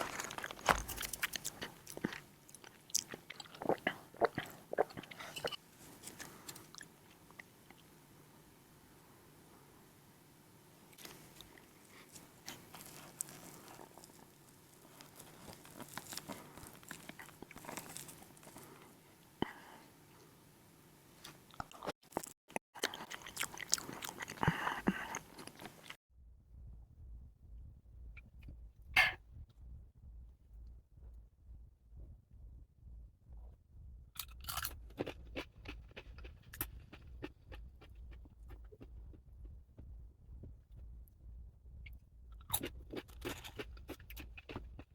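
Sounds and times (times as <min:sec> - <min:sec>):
person chewing crunchy food: 0:00.0 - 0:06.9, 0:11.0 - 0:18.8, 0:21.2 - 0:26.0, 0:34.2 - 0:40.6, 0:41.8 - 0:44.9.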